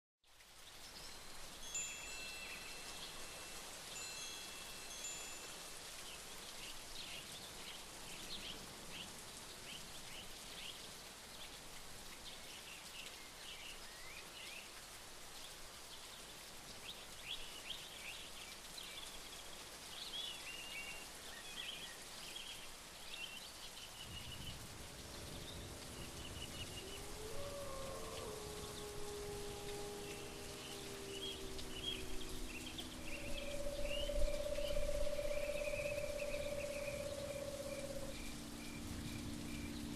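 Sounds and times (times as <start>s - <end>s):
steady hiss: 0.3s - 39.9s
small birds chirping: 16.0s - 39.9s
high whistled notes: 29.2s - 38.2s.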